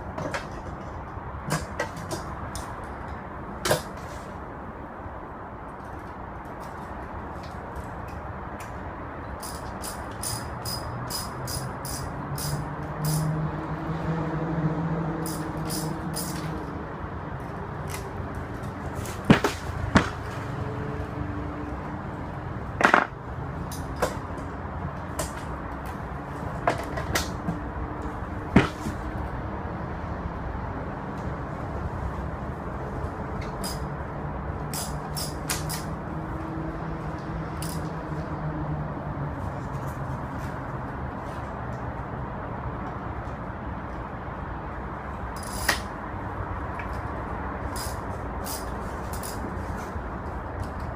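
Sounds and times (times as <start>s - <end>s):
hand tools clicking: 9.4s - 13.3s, 15.2s - 16.6s, 33.4s - 33.9s, 34.6s - 35.9s, 37.6s - 37.9s, 45.4s - 45.9s, 47.6s - 49.5s.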